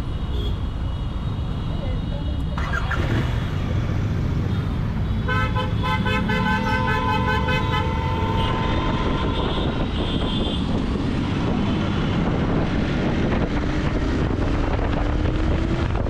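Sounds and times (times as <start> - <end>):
vehicle horn honking: 5.1 - 10.7.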